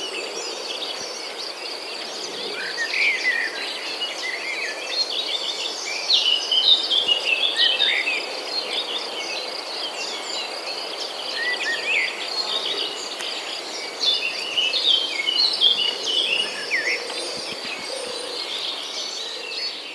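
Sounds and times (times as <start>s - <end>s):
high insect drone: 0.0s - 19.9s
songbirds chirping and whistling: 0.0s - 19.9s.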